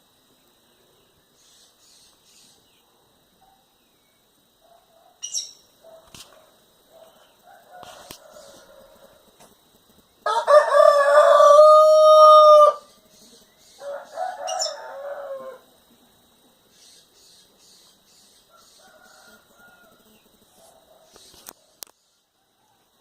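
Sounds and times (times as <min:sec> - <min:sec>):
faint bird chirps: 0:00.3 - 0:06.0, 0:16.6 - 0:22.9
rooster crowing: 0:07.4 - 0:09.2, 0:10.2 - 0:13.0, 0:13.8 - 0:15.8, 0:18.5 - 0:20.1.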